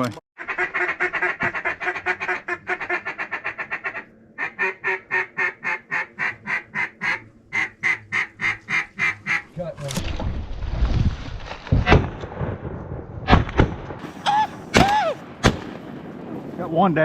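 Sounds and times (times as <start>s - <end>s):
duck call quacks: 0.4s - 9.5s.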